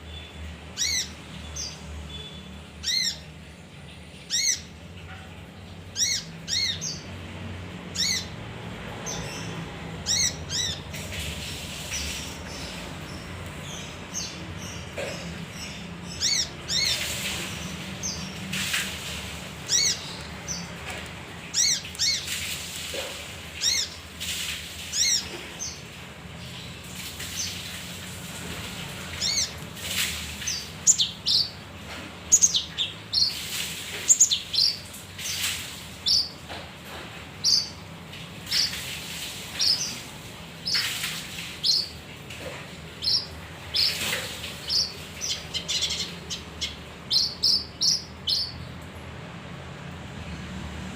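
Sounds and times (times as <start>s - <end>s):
bird chirping: 0.0s - 7.2s, 7.9s - 8.4s, 9.0s - 18.4s, 19.0s - 20.8s, 21.4s - 24.1s, 29.1s - 36.4s, 37.4s - 37.8s, 39.6s - 40.0s, 40.6s - 42.0s, 43.0s - 48.8s.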